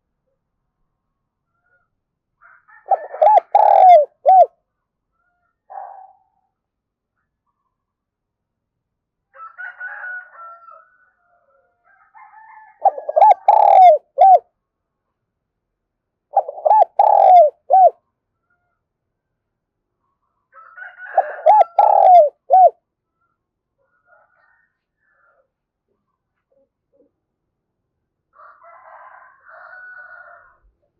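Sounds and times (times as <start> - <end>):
dove cooing: 2.8 - 4.5, 12.8 - 14.4, 16.4 - 18.0, 21.1 - 22.8.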